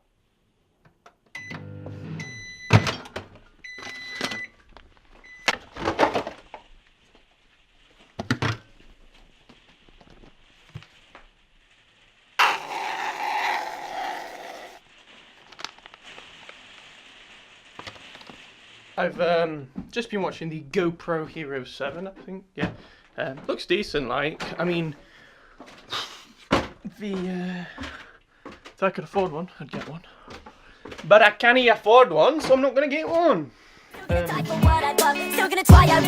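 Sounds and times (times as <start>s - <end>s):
kitchen knocks and thunks: 8.2s - 8.7s, 26.5s - 26.9s.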